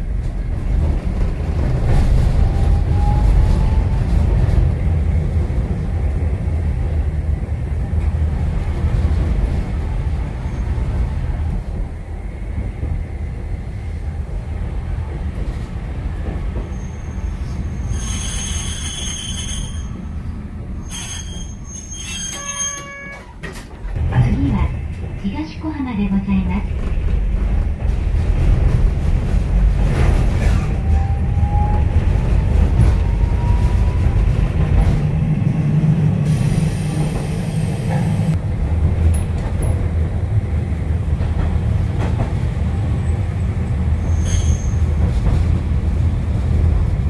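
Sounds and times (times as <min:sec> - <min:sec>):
streetcar wheels rumbling: 0:00.0 - 0:47.0
wheel squeal: 0:16.7 - 0:20.0, 0:20.8 - 0:23.3, 0:44.0 - 0:44.9.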